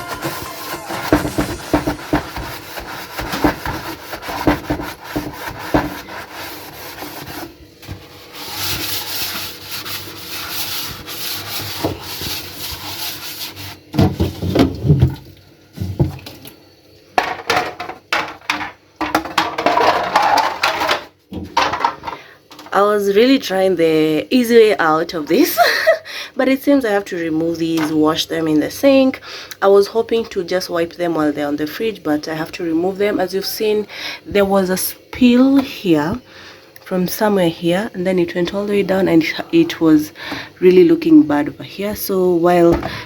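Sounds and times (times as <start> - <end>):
cloth scrubbing on shelves: 0.0 - 15.0.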